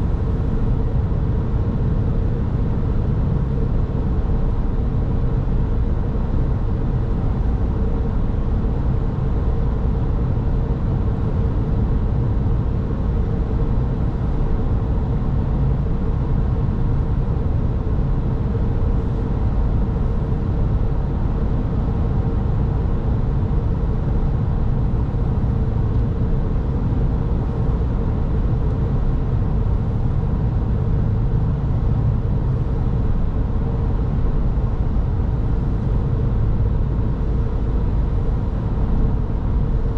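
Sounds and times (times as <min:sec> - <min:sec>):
car road and engine noise: 0:00.0 - 0:39.9
faint steady hum: 0:00.0 - 0:39.9.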